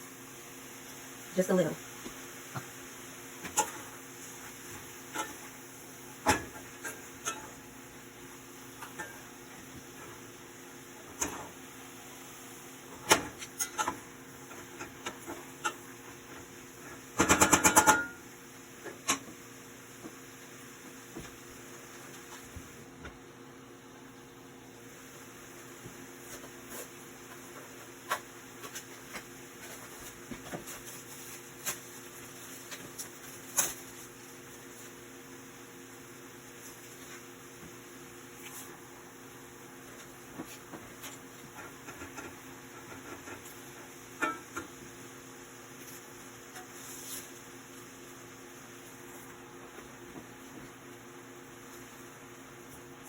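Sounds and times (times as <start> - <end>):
kitchen appliance humming: 0.0 - 53.0
kitchen utensils clicking and knocking: 13.0 - 15.8, 17.2 - 18.2.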